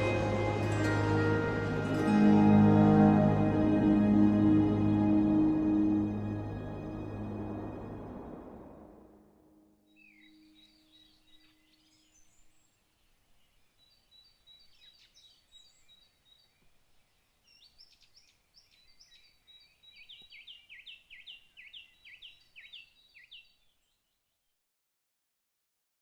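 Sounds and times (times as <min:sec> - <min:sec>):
faint songbirds chirping: 0:09.8 - 0:24.6.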